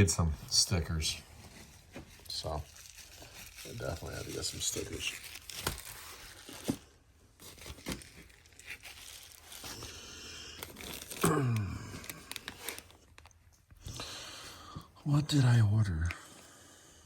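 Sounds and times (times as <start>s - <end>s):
packaging crinkling and tearing: 1.6s - 14.2s.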